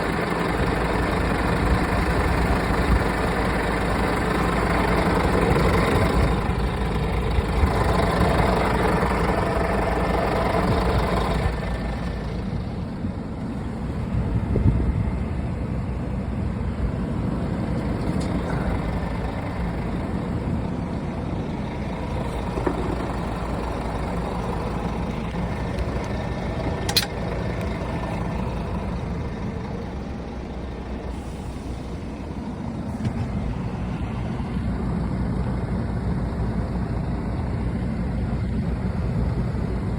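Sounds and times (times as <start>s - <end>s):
diesel truck engine running: 0.0s - 39.9s
sharp click: 26.9s - 27.2s.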